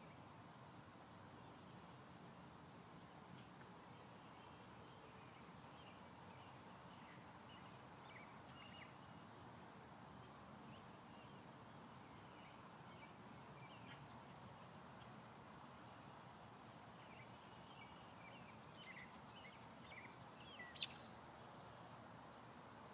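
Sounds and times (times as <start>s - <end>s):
steady low hiss: 0.0s - 22.9s
faint bird chirps: 17.0s - 22.0s.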